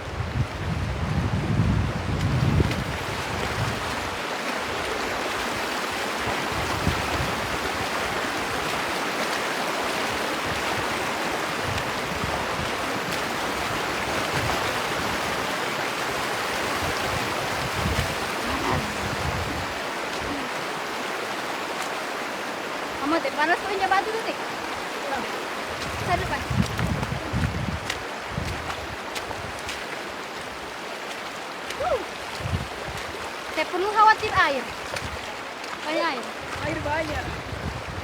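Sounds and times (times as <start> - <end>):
wind buffeting microphone: 0.0 - 8.9, 10.0 - 20.6, 25.6 - 29.8, 31.8 - 35.6, 36.4 - 38.0
river water over rocks: 2.0 - 38.0.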